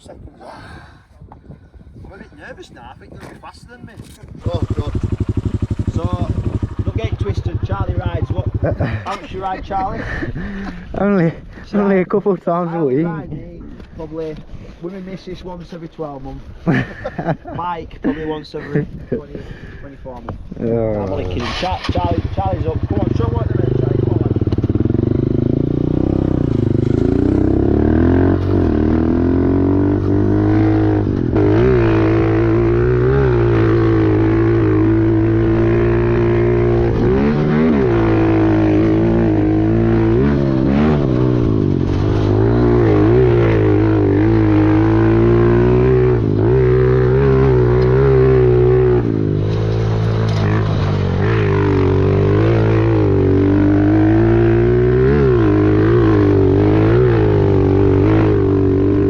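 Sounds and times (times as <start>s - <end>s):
pit bike engine revving: 4.0s - 9.1s, 21.1s - 59.0s.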